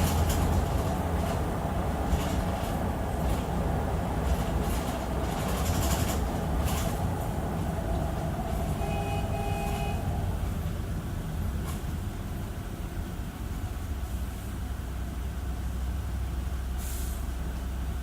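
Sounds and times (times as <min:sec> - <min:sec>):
body rattles clattering: 0:00.0 - 0:03.6
bus engine rumble: 0:00.0 - 0:18.0.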